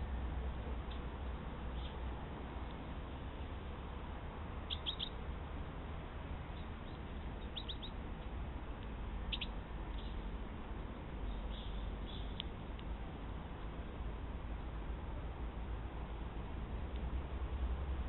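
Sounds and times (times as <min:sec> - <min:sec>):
songbirds chirping: 0:00.0 - 0:05.3, 0:06.0 - 0:14.1
steady background hiss: 0:00.0 - 0:18.0.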